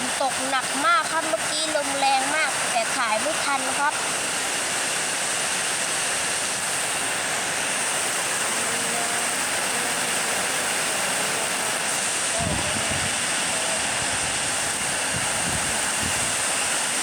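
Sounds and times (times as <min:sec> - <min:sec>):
heavy rain pouring: 0:00.0 - 0:17.0
strong wind: 0:11.7 - 0:17.0.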